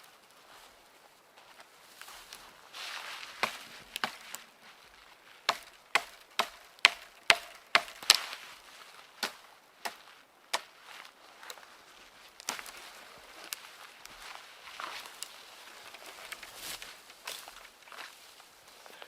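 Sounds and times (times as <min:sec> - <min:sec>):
wood chopping strikes: 0:03.4 - 0:04.4, 0:05.5 - 0:08.3, 0:09.2 - 0:10.7.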